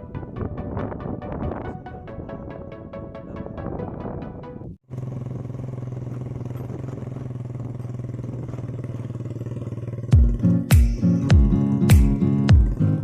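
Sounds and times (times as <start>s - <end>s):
music with plucked notes: 0.0s - 4.7s, 10.2s - 13.0s
engine humming steadily: 4.6s - 13.0s.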